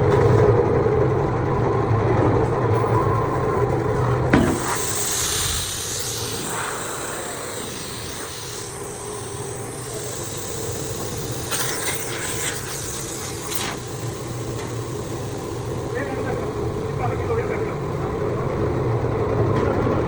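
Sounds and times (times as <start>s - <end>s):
machinery humming: 0.0s - 20.0s
hissing air bursts: 4.4s - 17.0s.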